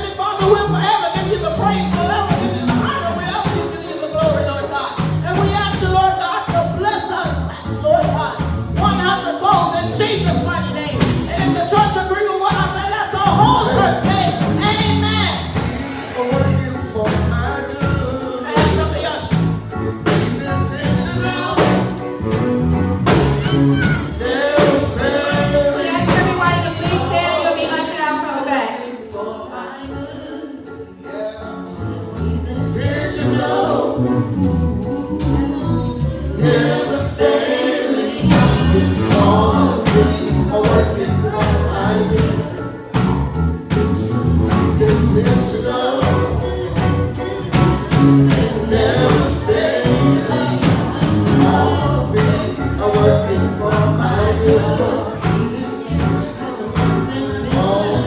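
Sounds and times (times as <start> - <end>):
gospel singing over a band: 0.0 - 58.0.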